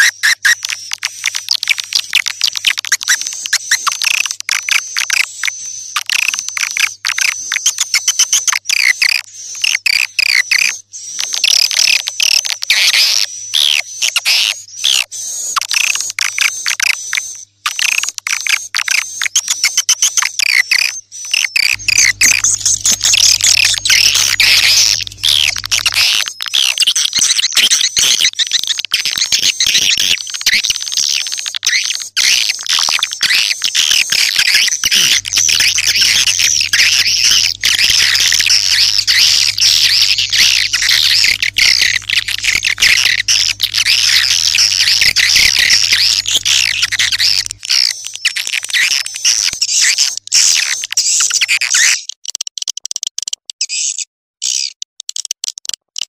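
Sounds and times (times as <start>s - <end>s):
swiftlets twittering: 21.6s - 26.4s, 33.2s - 48.0s
low steady hum: 21.8s - 26.1s, 34.9s - 47.6s.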